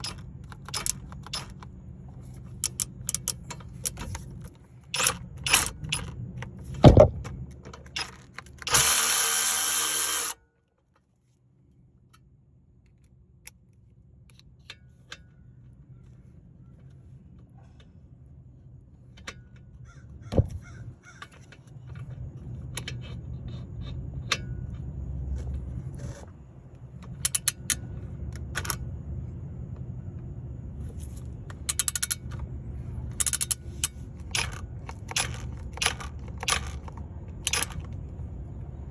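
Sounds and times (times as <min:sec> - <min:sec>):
scattered clicks: 0:33.1 - 0:38.2.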